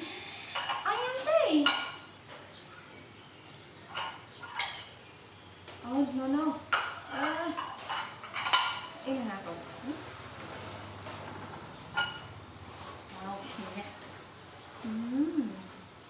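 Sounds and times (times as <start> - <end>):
dishes and cutlery clinking: 0.6 - 2.1, 3.8 - 5.0, 6.7 - 9.1, 10.5 - 12.4
wavering voice sounds: 14.8 - 15.8.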